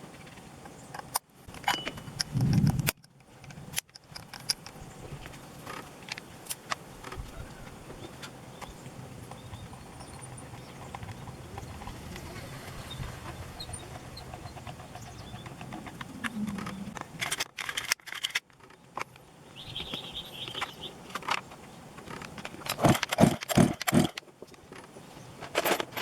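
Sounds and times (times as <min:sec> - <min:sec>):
tools clicking and clinking: 0:00.3 - 0:07.2, 0:14.0 - 0:19.2, 0:20.6 - 0:26.0
high ringing tone: 0:01.7 - 0:02.1.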